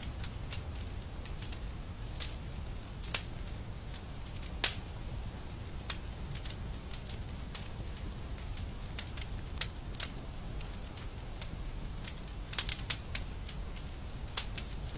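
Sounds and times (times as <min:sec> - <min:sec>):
wood fire crackling: 0:00.0 - 0:14.9.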